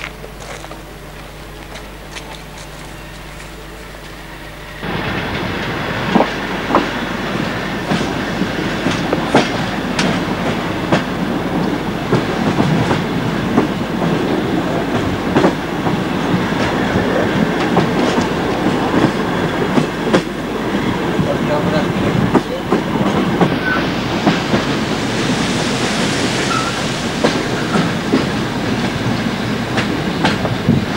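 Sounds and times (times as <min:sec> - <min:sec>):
train wheels rumbling: 0:00.0 - 0:30.9
wheels clacking over rail joints: 0:04.8 - 0:25.0, 0:26.4 - 0:30.9.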